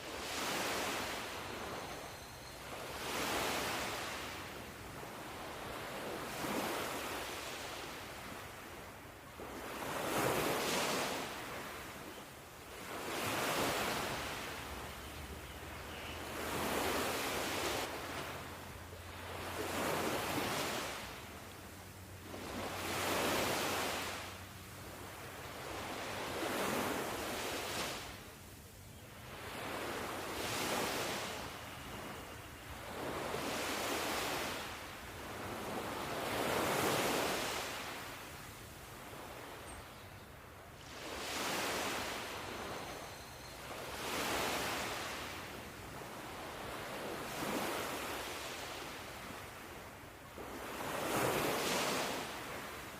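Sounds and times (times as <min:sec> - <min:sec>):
ocean waves breaking: 0:02.7 - 0:11.9, 0:12.7 - 0:21.6, 0:22.2 - 0:28.2, 0:32.8 - 0:38.2, 0:40.8 - 0:49.8, 0:50.4 - 0:52.9.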